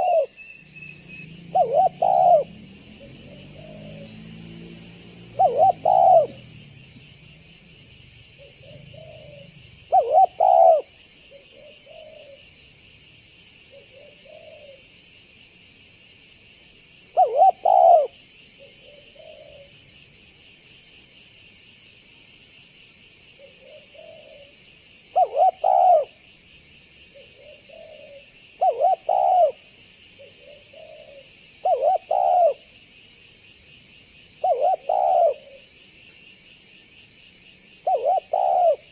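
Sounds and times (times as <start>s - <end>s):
dove cooing: 0.0s - 0.4s, 1.0s - 4.2s, 5.2s - 7.1s, 8.4s - 12.4s, 13.7s - 14.8s, 17.2s - 19.7s, 23.4s - 24.5s, 25.1s - 26.2s, 27.1s - 32.7s, 34.4s - 35.7s, 37.8s - 38.9s.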